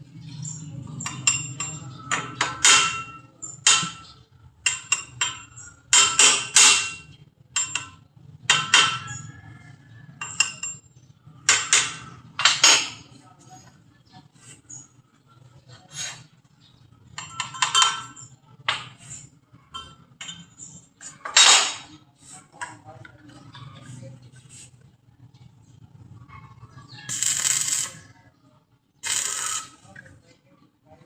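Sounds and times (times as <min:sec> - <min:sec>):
hammer striking metal: 0:01.1 - 0:09.2, 0:11.4 - 0:13.0.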